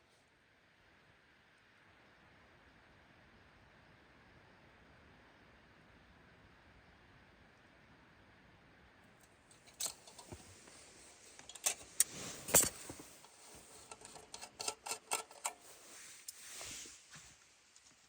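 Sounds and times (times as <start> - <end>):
camping gear clinking and knocking: 9.5 - 16.9.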